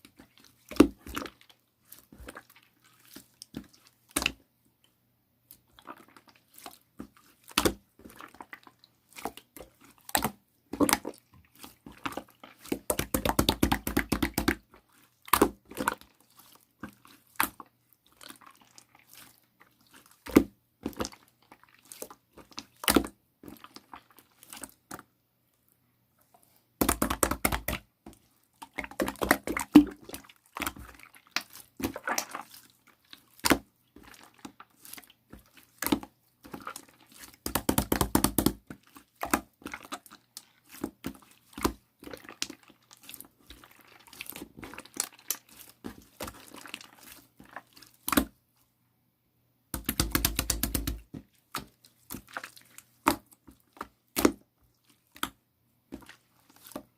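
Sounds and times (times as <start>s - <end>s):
slime rapid popping: 12.7s - 14.6s, 26.8s - 27.8s, 37.4s - 38.6s, 49.7s - 51.7s.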